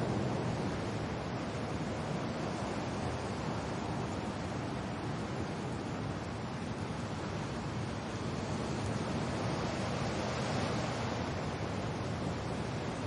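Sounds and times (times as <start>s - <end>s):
wind and rain: 0.0s - 13.0s.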